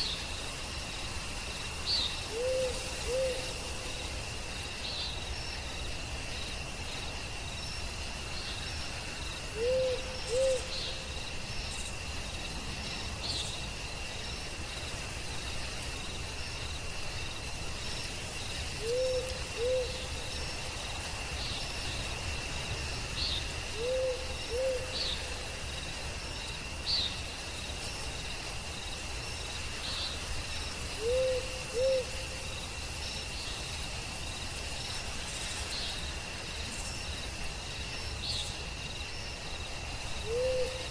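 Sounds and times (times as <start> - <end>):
high-pitched insect trill: 0.0 - 40.9
owl hooting: 2.3 - 3.6, 9.6 - 10.7, 18.8 - 20.0, 23.8 - 25.0, 31.0 - 32.2, 40.2 - 40.8.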